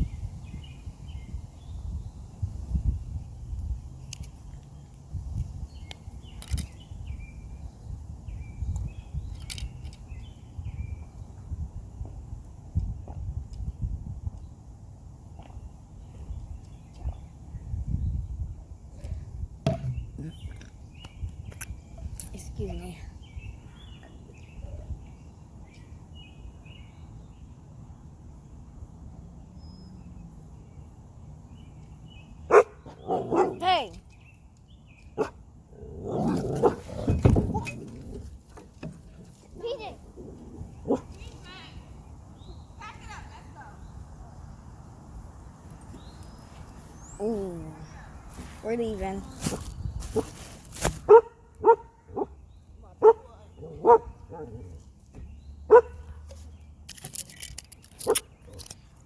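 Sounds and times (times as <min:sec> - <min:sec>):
wind rumble on microphone: 0:00.0 - 0:27.4, 0:35.6 - 0:52.6
bird calling in clipped notes: 0:04.0 - 0:07.2, 0:08.6 - 0:10.4, 0:56.0 - 0:59.0.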